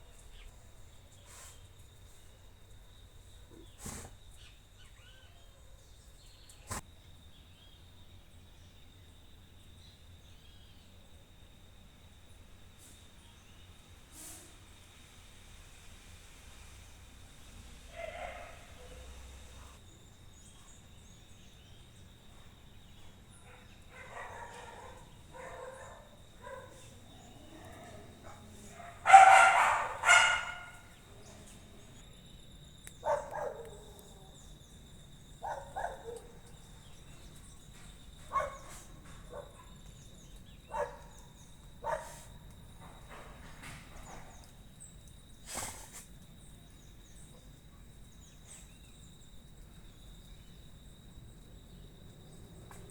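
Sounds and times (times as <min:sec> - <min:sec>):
dog barking: 0:17.9 - 0:19.8, 0:23.4 - 0:26.9, 0:27.5 - 0:31.0, 0:33.0 - 0:34.3, 0:35.4 - 0:36.4, 0:38.3 - 0:39.8, 0:40.7 - 0:41.2, 0:41.8 - 0:42.3.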